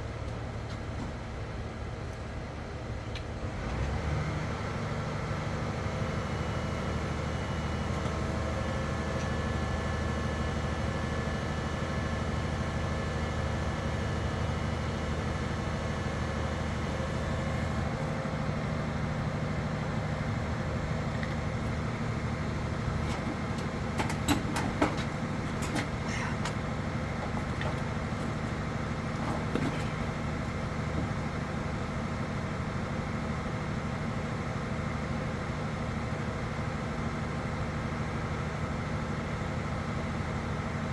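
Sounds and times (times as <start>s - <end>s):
large engine running: 0.0s - 40.9s.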